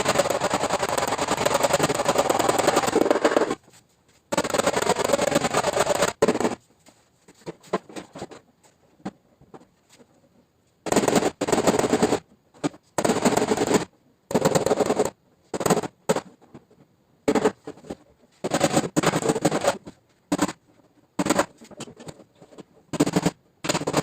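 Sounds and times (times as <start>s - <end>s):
rapid tapping on sheet metal: 0.0s - 3.6s, 4.3s - 6.6s, 10.9s - 12.2s.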